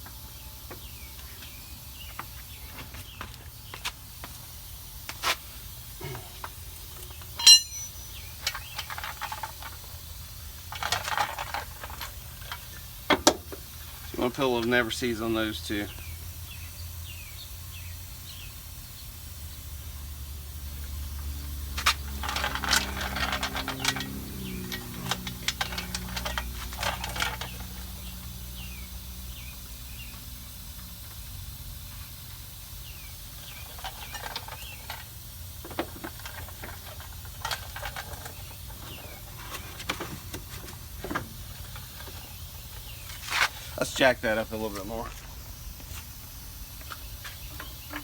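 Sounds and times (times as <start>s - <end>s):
low wavering hum: 6.0s - 9.4s
tools clicking and clinking: 7.4s - 9.4s.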